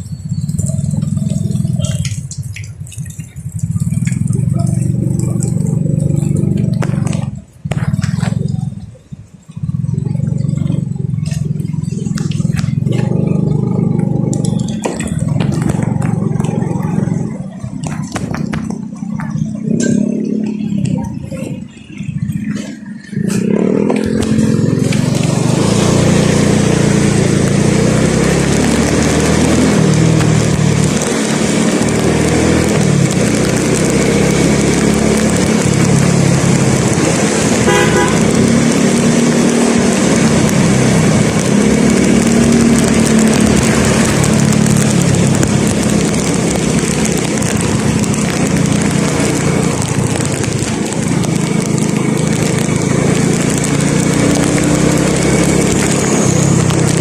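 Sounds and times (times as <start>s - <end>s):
road and wind noise: 0.0s - 57.0s
vehicle engine drone: 0.0s - 57.0s
sharp ticks: 0.2s - 57.0s
short horn toot: 37.7s - 38.3s.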